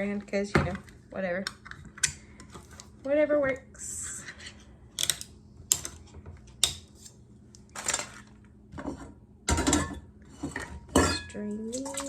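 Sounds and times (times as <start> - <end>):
metal and dishes clinking: 8.8 - 12.0.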